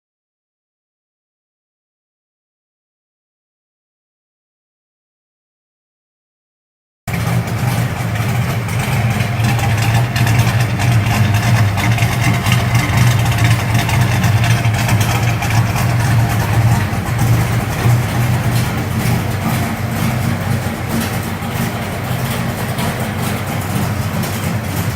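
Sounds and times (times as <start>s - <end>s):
car engine idling: 7.1s - 24.9s.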